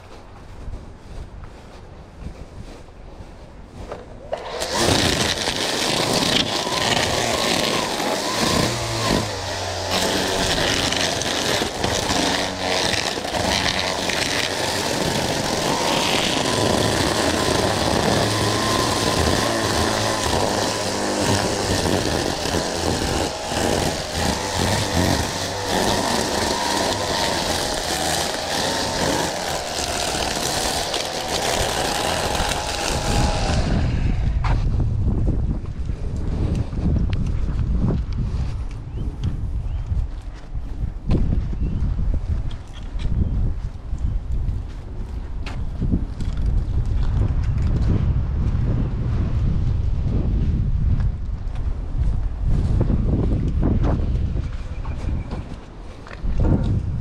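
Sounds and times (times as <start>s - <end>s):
lawn mower engine running: 4.2s - 34.4s.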